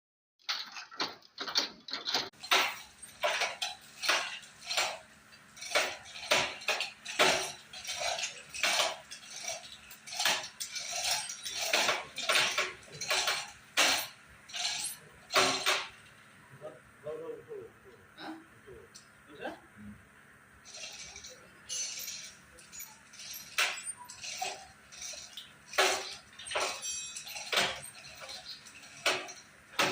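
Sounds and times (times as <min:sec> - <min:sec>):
metallic clinks and knocks: 0:00.4 - 0:16.4, 0:20.6 - 0:29.9.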